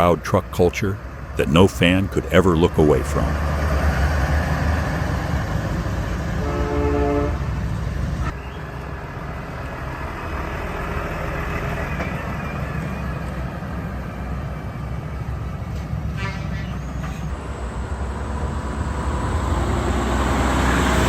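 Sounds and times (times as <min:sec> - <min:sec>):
traffic rumble: 0:00.0 - 0:21.0
truck engines running: 0:00.0 - 0:21.0
air horn blast: 0:06.4 - 0:07.5.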